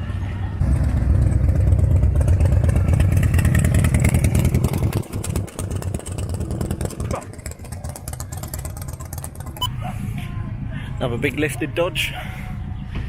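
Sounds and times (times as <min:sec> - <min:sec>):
vehicle engine exhaust rumble: 0:00.0 - 0:13.0.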